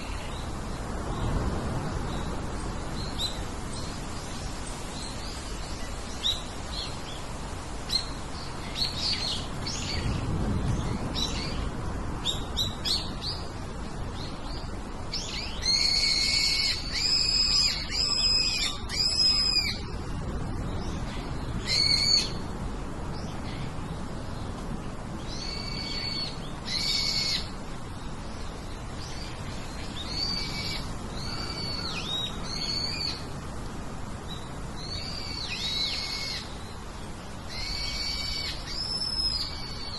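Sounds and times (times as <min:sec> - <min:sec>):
birds whistling: 0:14.6 - 0:19.9, 0:37.5 - 0:39.9.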